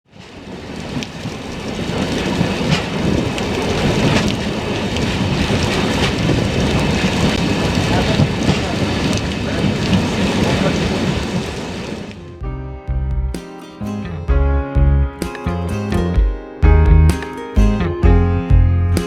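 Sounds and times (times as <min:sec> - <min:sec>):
train deep rumbling with clicks: 0:00.6 - 0:12.2.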